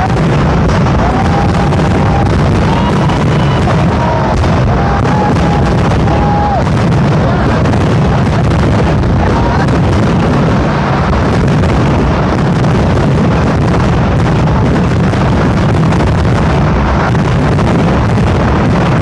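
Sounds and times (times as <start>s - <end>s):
firecracker barrage: 0.0s - 19.0s.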